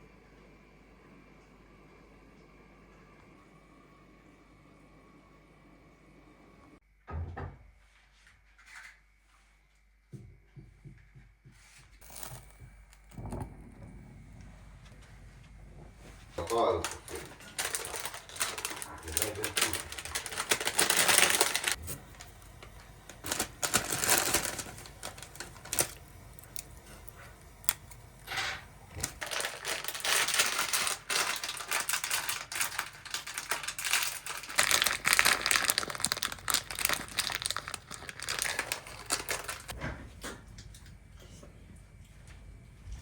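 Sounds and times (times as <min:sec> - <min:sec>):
rustling and crinkling: 0:11.6 - 0:39.8.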